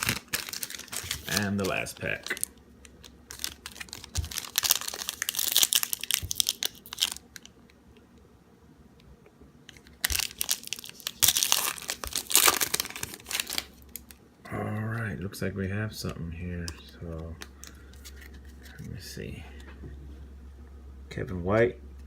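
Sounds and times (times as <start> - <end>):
card pack wrapper crinkling: 0.0 - 7.5, 9.7 - 14.2, 16.6 - 19.0.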